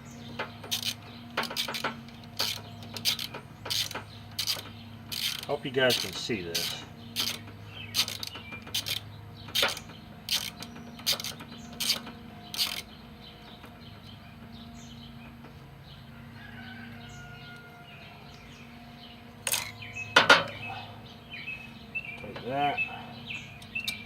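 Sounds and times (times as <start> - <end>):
steady low hum: 0.0 - 24.0
ratchet wrench clicking: 0.6 - 12.9.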